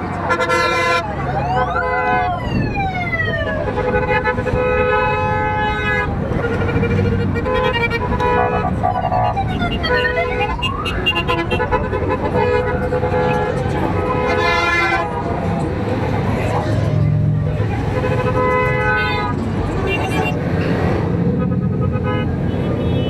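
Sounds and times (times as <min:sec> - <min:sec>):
sirens wailing: 0:00.0 - 0:20.4
motorcycle engines rumbling: 0:00.0 - 0:23.0
long horn blasts: 0:00.2 - 0:01.1, 0:11.0 - 0:15.2.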